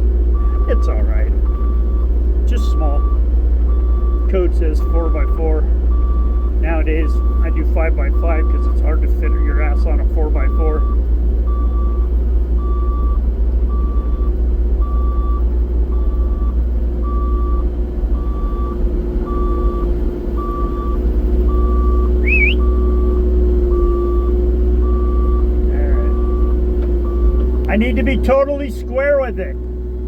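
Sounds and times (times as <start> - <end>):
diesel excavator engine: 0.0 - 30.0
travel alarm beeps: 2.7 - 5.4, 10.4 - 12.0, 18.2 - 27.4
short rising whistle: 22.2 - 22.7.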